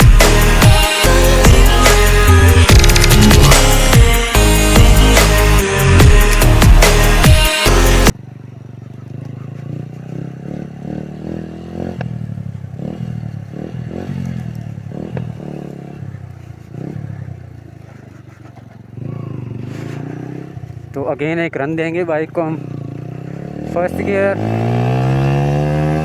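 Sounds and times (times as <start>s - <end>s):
electronic music: 0.0s - 8.1s
motorcycle engine: 0.0s - 26.0s.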